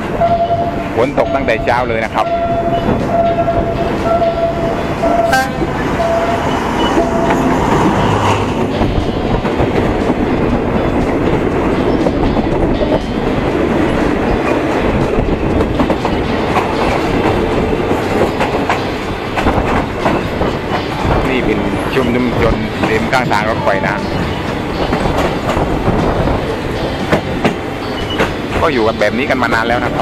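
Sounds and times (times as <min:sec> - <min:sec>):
second train passing: 0:00.0 - 0:30.0
train wheels clacking on rails: 0:00.0 - 0:30.0
steady warning tone: 0:00.2 - 0:09.6.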